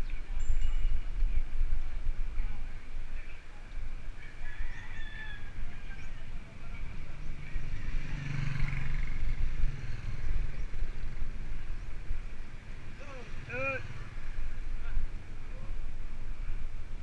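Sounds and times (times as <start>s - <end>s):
wind rumbling on microphone: 0.0s - 17.0s
motor vehicle hum: 5.5s - 17.0s.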